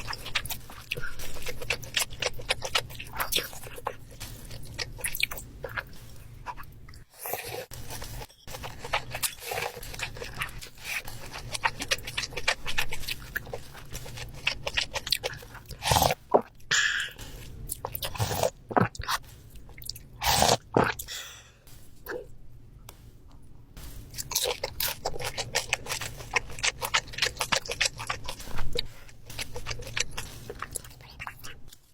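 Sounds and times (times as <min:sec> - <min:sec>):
crisp crunching bites: 0:00.0 - 0:06.6, 0:07.2 - 0:16.5, 0:23.8 - 0:31.9
wet chewing: 0:00.0 - 0:21.4, 0:22.9 - 0:31.9.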